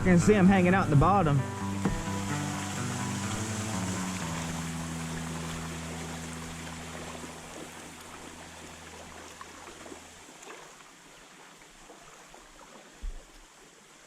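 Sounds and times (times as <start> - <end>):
low steady hum: 0.0 - 11.0
creek water flowing: 0.0 - 14.0.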